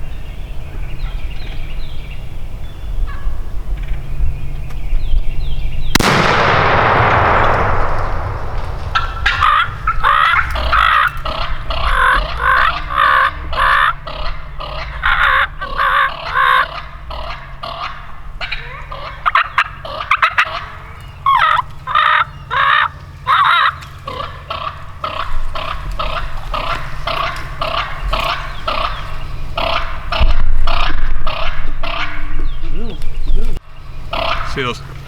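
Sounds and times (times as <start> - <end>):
wild turkeys calling: 5.9 - 35.0
shotgun blast with echo: 6.0 - 10.8.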